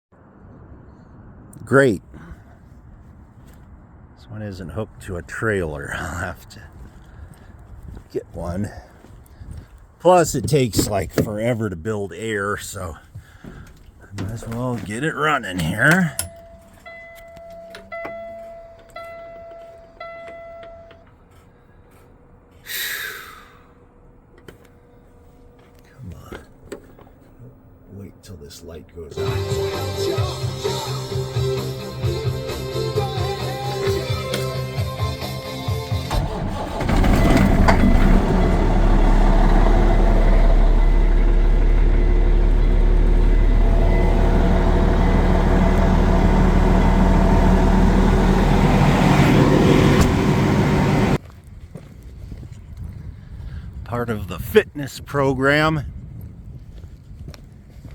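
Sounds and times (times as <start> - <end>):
diesel truck engine starting and idling: 4.5 - 21.4, 29.2 - 51.2.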